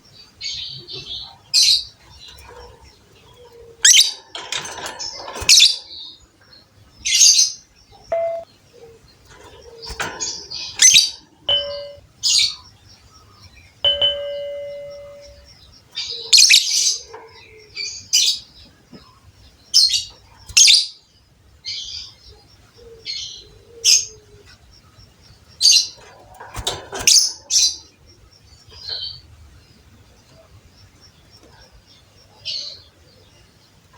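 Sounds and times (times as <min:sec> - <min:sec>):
lovebirds chirping: 0:00.0 - 0:33.9
ringing ding: 0:08.1 - 0:08.5, 0:10.8 - 0:12.1, 0:13.9 - 0:15.5.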